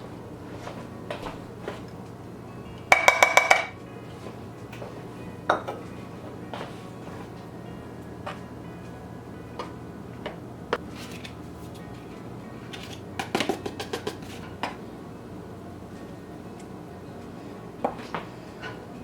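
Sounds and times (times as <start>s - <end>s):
quiet background music: 0.0s - 19.0s
utensil clinking against mixing bowl: 2.9s - 3.8s.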